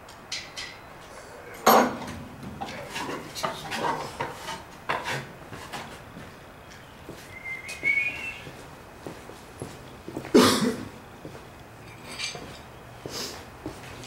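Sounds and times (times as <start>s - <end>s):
short wavering whistle: 7.3s - 8.5s.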